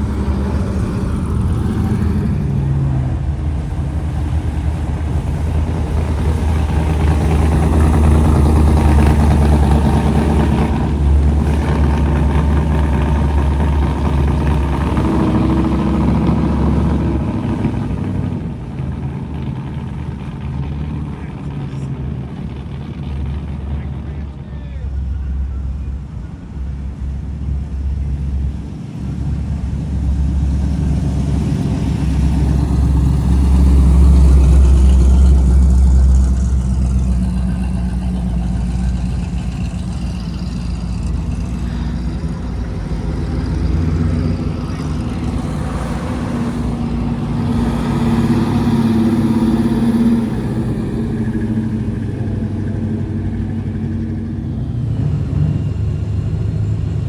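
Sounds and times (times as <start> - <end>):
cars driving past revving: 0.0 - 57.0.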